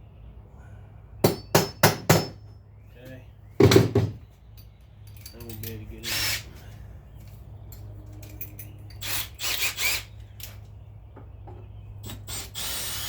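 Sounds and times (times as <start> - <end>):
cordless drill running: 9.0 - 10.1, 12.3 - 13.0.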